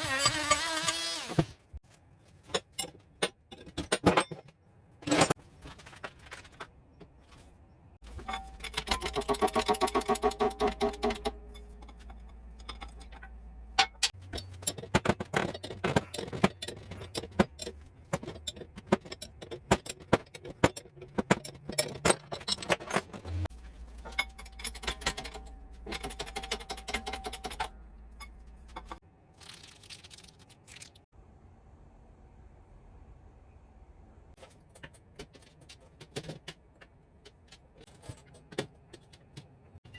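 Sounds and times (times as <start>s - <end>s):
metal tools clinking: 8.1s - 29.0s.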